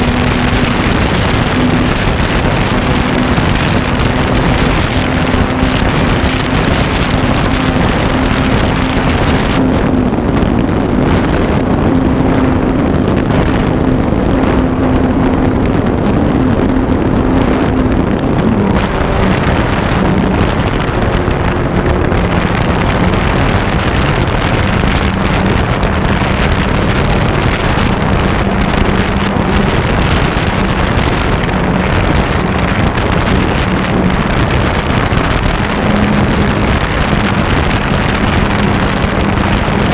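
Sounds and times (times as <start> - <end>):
wind rushing over camera: 0.0 - 39.9.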